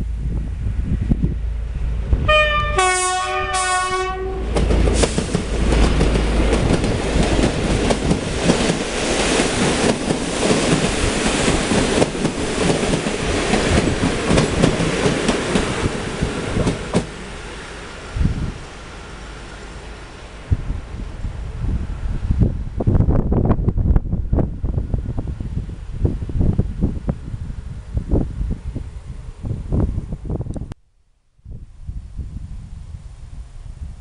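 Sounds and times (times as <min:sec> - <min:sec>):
train passing: 0:00.0 - 0:30.5
train horn blasts: 0:02.2 - 0:04.6
wheels clattering over rail joints: 0:04.5 - 0:17.2.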